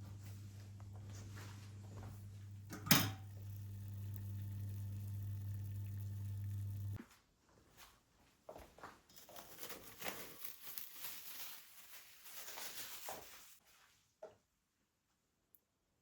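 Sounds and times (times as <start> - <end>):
low electrical hum: 0.0 - 7.0.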